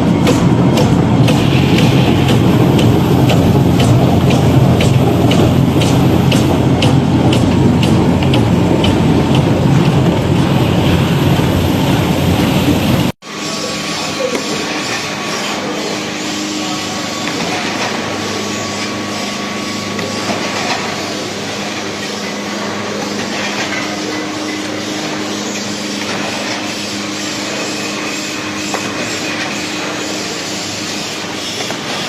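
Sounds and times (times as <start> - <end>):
low hum: 0.0 - 13.2
machine running: 0.0 - 32.0.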